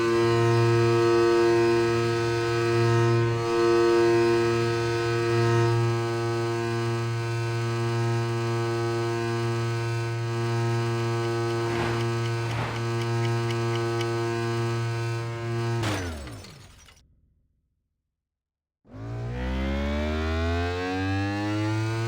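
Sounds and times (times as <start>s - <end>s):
sweeping swishes: 11.4s - 13.5s.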